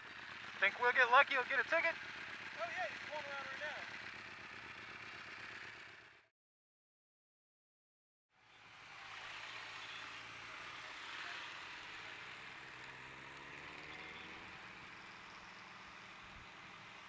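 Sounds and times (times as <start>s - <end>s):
wind or road noise: 0.0s - 6.2s, 8.3s - 17.0s
vehicle engine running: 0.0s - 6.3s, 8.4s - 17.0s.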